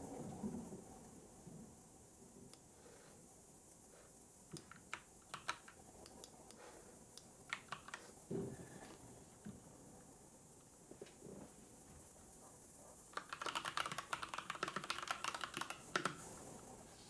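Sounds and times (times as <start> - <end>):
keyboard typing: 4.5 - 6.4, 7.5 - 8.2, 13.1 - 16.4.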